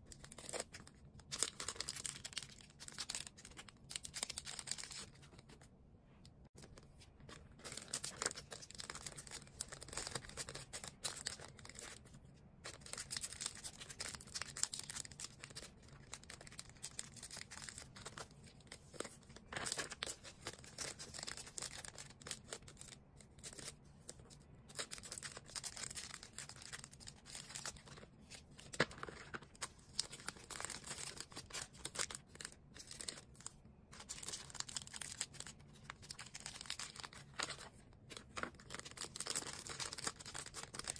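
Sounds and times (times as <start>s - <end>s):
plastic packaging crinkling: 24.7s - 40.9s
packaging tearing: 28.6s - 40.9s.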